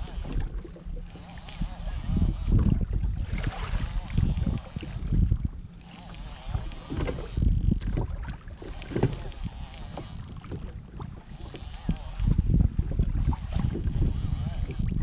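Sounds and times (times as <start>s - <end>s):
water splashing against kayak hull: 0.0s - 15.0s
wind buffeting microphone: 0.0s - 15.0s.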